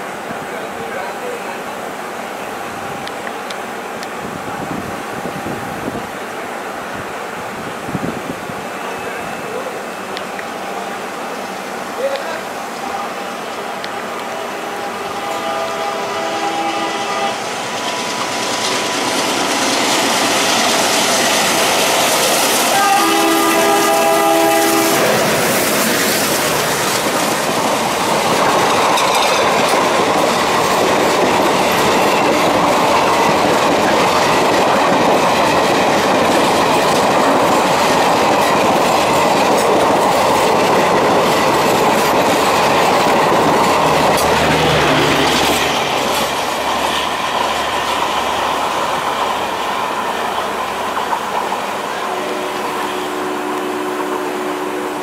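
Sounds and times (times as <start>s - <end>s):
train coaches rumbling on rails: 0.0s - 55.0s
diesel locomotive horn: 12.8s - 18.1s, 22.5s - 26.7s, 43.8s - 45.9s, 51.9s - 55.0s.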